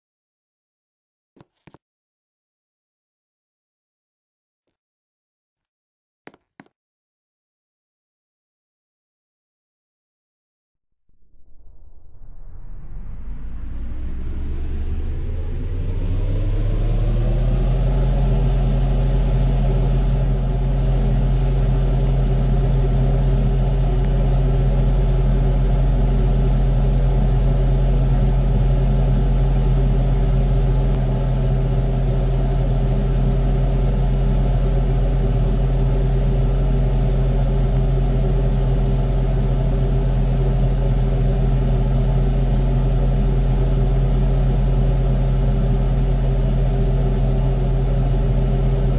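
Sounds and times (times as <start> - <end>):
electric fan motor humming: 15.9 - 48.9.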